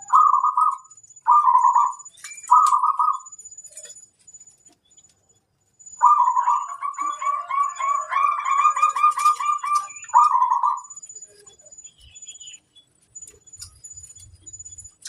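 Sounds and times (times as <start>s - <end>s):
dove cooing: 0.0s - 3.3s, 6.0s - 10.9s.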